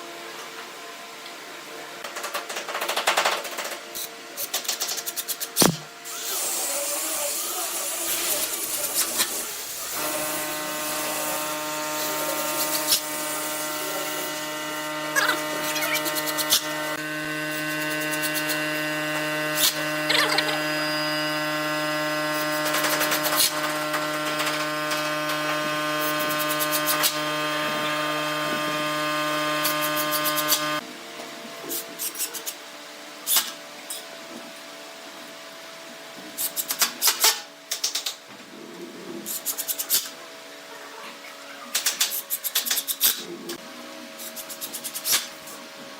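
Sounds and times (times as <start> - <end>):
power tool motor running: 5.6 - 30.8.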